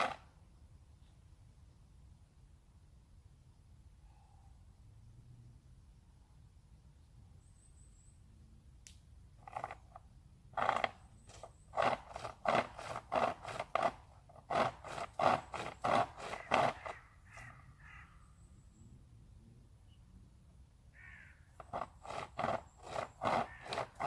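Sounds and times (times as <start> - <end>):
chain saw rasping through branch: 0.0 - 0.2, 9.4 - 10.0, 10.6 - 17.0, 21.6 - 24.0.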